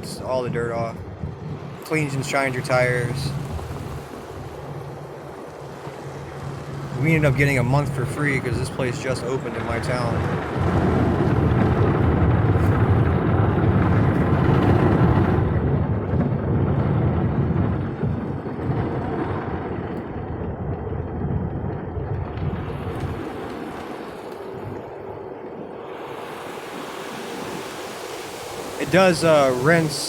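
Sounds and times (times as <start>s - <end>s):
car wash water spray and brushes: 25.8s - 30.0s.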